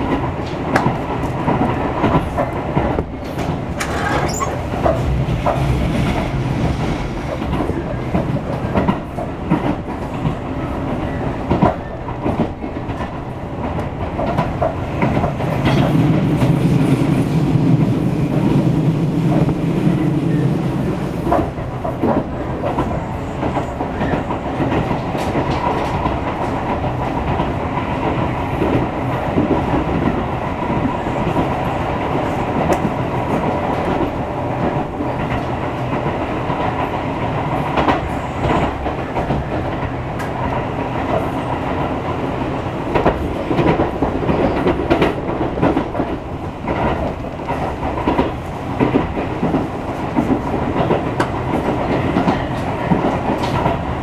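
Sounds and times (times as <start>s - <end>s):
wheels clacking over rail joints: 0.0s - 16.9s
train wheels rumbling on rails: 0.0s - 54.0s.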